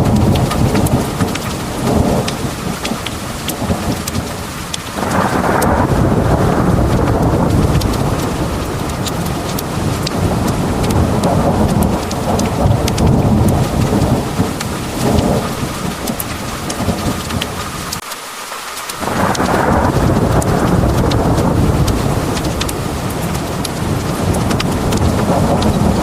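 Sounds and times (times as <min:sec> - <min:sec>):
drops ticking on hard surfaces: 0:00.0 - 0:04.9, 0:07.0 - 0:17.5, 0:20.1 - 0:26.0
thunder rumbling: 0:00.0 - 0:18.0, 0:19.0 - 0:26.0
heavy rain pouring: 0:00.0 - 0:26.0.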